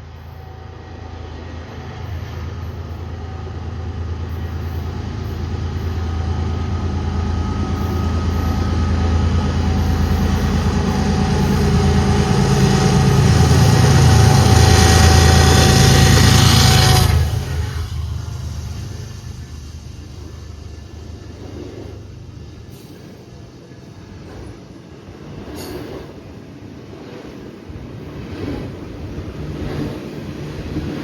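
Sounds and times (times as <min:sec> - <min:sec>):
locomotive engine rumble: 0:02.7 - 0:25.1
steady whine: 0:02.8 - 0:26.2.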